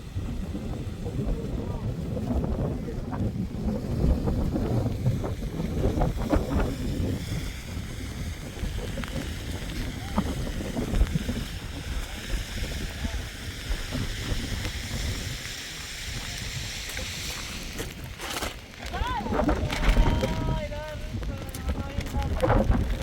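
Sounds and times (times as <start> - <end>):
wind buffeting microphone: 0.0 - 23.0
faint voices: 18.2 - 23.0.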